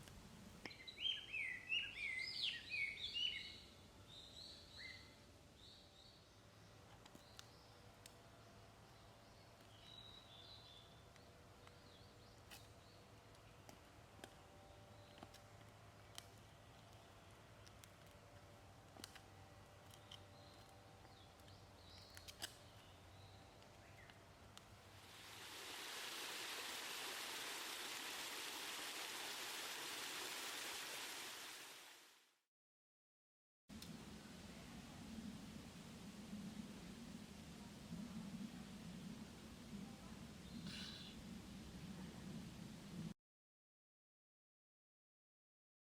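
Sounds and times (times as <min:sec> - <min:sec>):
faint bird chirp: 0:00.6 - 0:07.8, 0:40.4 - 0:41.4
steady rushing hiss: 0:24.4 - 0:32.1.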